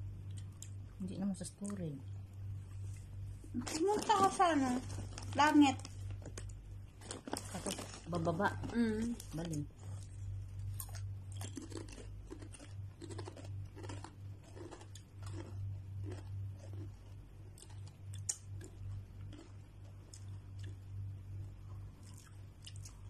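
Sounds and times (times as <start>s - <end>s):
steady low hum: 0.0s - 23.0s
person chewing tortilla chips: 4.9s - 23.0s.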